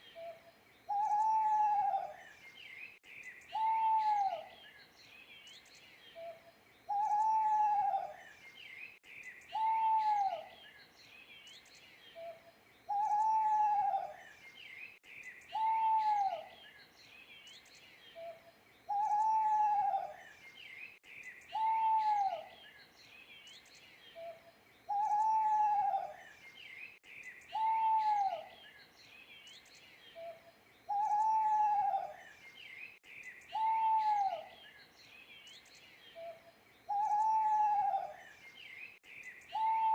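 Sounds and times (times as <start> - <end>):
small birds chirping: 0.0 - 39.9
owl hooting: 0.9 - 2.2, 3.5 - 4.5, 6.9 - 8.2, 9.5 - 10.5, 12.2 - 14.2, 15.5 - 16.5, 18.2 - 20.2, 21.5 - 22.5, 24.2 - 26.2, 27.5 - 28.5, 30.2 - 32.2, 33.5 - 34.6, 36.2 - 38.2, 39.5 - 39.9.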